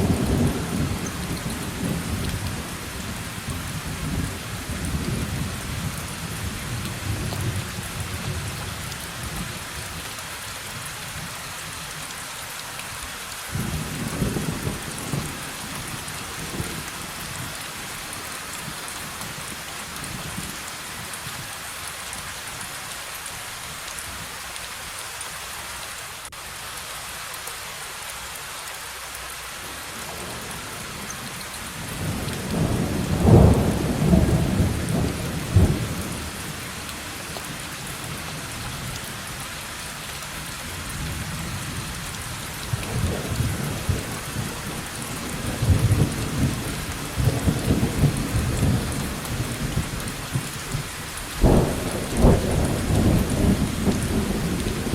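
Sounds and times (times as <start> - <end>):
heavy rain: 0.0 - 54.9
rolling thunder: 32.0 - 36.3, 51.4 - 54.9.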